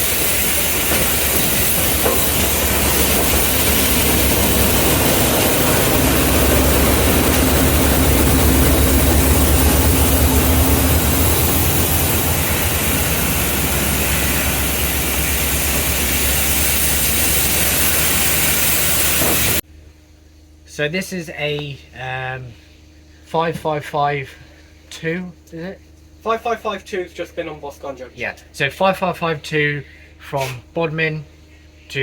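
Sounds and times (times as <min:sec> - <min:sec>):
train engine rumble: 0:00.0 - 0:19.6
train hum: 0:00.0 - 0:19.6.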